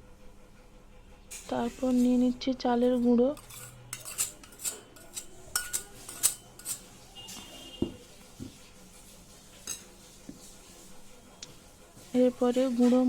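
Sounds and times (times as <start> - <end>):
spoon clinking against a bowl: 3.4 - 7.9, 9.6 - 9.9.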